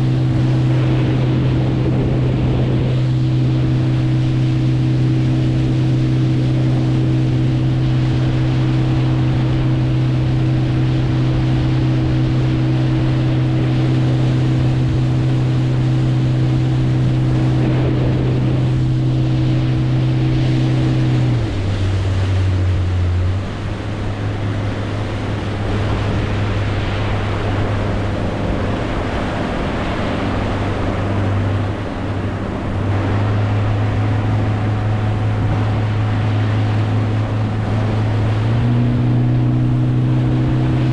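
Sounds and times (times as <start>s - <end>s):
wind rushing: 0.0s - 22.7s
boat motor running: 0.0s - 40.9s
water rushing: 0.0s - 40.9s.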